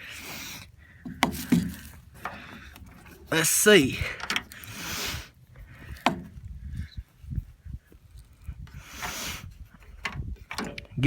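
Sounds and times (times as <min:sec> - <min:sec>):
rustling hiss: 0:00.0 - 0:06.1, 0:08.8 - 0:09.5.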